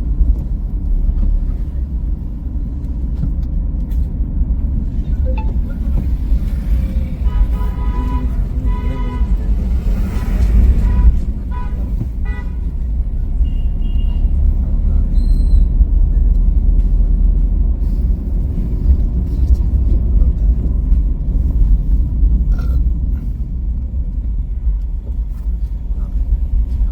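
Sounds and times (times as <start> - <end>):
car driving on highway: 0.0 - 26.9
vehicle horn toots: 7.2 - 12.8, 13.4 - 14.3.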